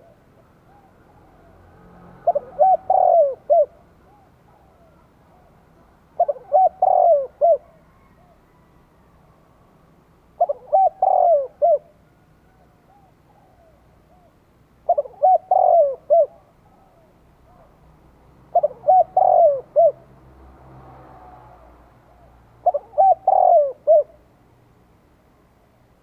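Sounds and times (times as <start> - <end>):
dove cooing: 0.0 - 8.7, 10.3 - 17.8, 18.5 - 20.1, 22.1 - 24.3.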